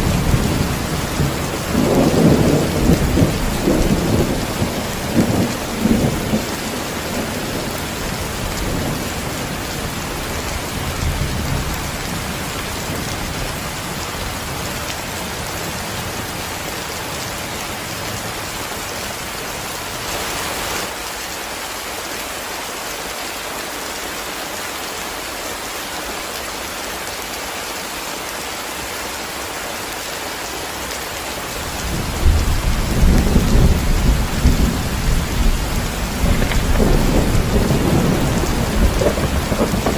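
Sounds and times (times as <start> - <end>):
thunder rumbling: 0.0 - 14.3, 31.6 - 39.9
heavy rain: 0.0 - 39.9.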